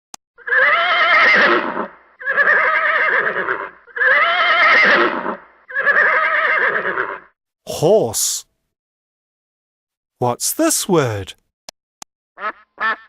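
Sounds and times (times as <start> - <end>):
horse whinnying: 0.4 - 7.3.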